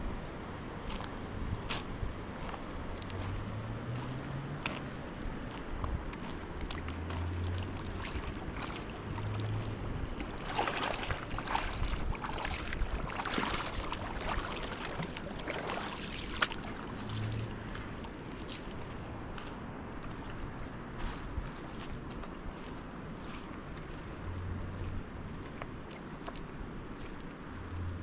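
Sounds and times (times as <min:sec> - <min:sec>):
rushing water: 0:02.2 - 0:28.0
wind noise: 0:04.3 - 0:18.0.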